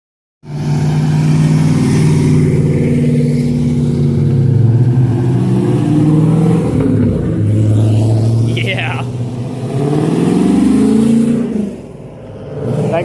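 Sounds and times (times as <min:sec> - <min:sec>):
car engine at high revs: 0:00.4 - 0:13.0.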